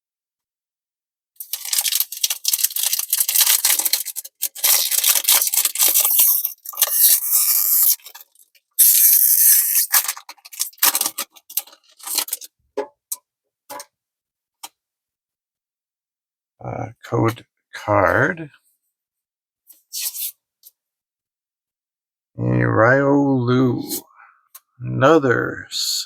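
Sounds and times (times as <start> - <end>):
foil wrapper crinkling and tearing: 1.4 - 12.5.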